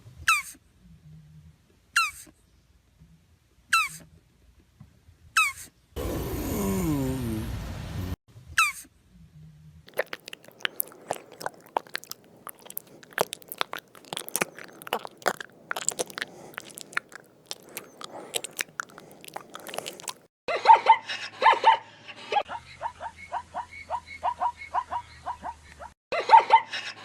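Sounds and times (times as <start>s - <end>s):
animal chewing and crunching: 9.9s - 20.3s.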